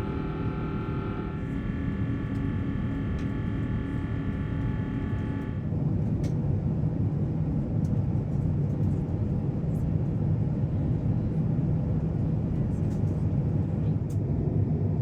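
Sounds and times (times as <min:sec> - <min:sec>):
airplane cabin rumble: 0:00.0 - 0:06.4.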